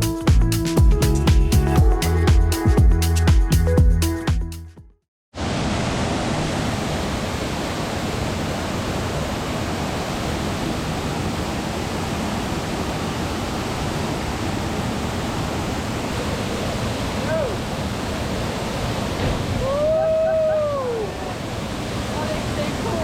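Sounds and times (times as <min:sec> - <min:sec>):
waterfall rushing: 0:05.4 - 0:23.0.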